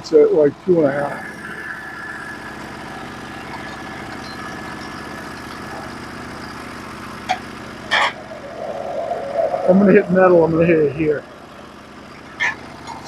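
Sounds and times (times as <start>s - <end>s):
sawmill engine idling: 0.8s - 8.4s.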